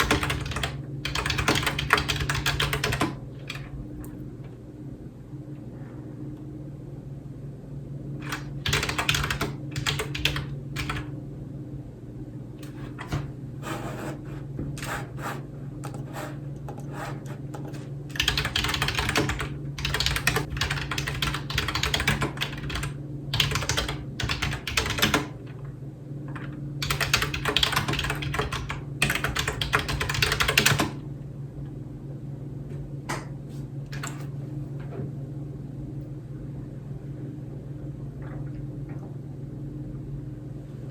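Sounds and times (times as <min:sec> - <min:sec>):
keyboard typing: 0:00.0 - 0:03.7, 0:08.2 - 0:11.1, 0:15.8 - 0:25.4, 0:26.8 - 0:31.0
steady low hum: 0:00.0 - 0:40.9.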